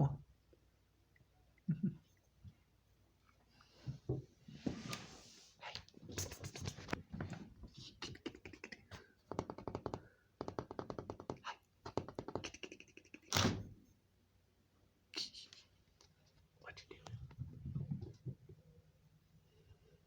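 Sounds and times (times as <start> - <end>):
clicks and taps on phone: 9.3 - 12.5.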